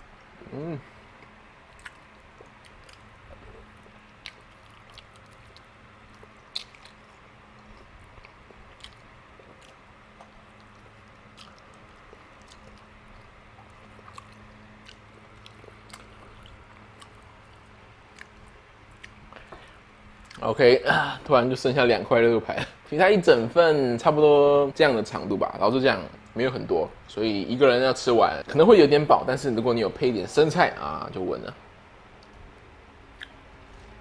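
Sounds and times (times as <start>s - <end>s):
faint steady hum: 0.0s - 34.0s
man chewing meat off bone: 1.2s - 20.4s
mouth clicks and smacks: 1.2s - 20.4s, 33.1s - 33.8s.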